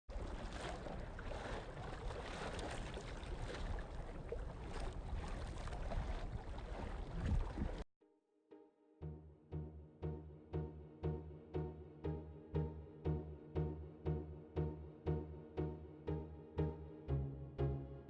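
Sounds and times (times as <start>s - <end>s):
wind buffeting microphone: 0.5s - 7.8s.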